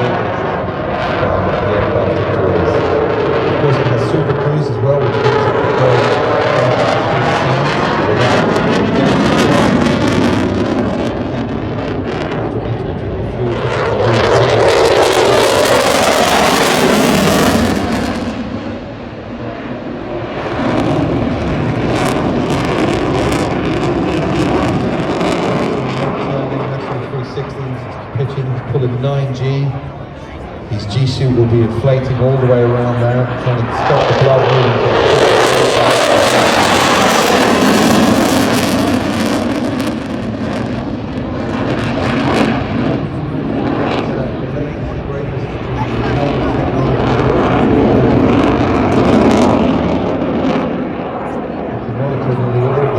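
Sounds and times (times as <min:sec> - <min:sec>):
jet engines roaring: 0:00.0 - 0:52.9.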